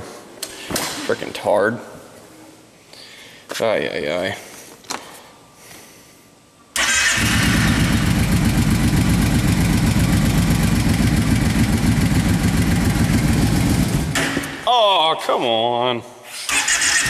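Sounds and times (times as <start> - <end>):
atv engine starting and running: 6.8 - 14.3, 16.5 - 17.0.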